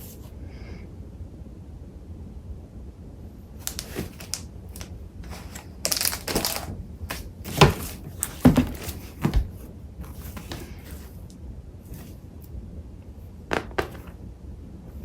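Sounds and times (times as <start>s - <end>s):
paper rustling and crinkling: 3.6s - 11.3s.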